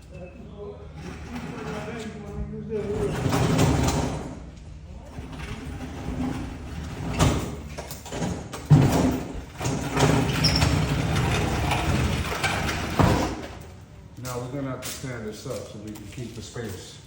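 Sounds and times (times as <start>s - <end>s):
refrigerator wheels rolling: 0.9s - 14.4s.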